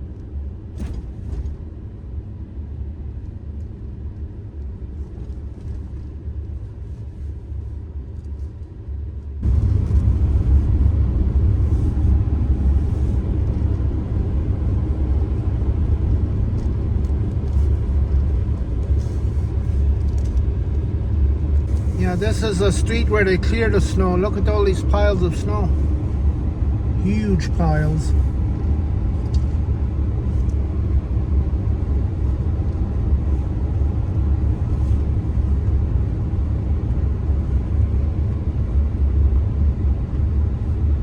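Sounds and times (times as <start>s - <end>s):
car rumbling on road: 9.2s - 40.8s.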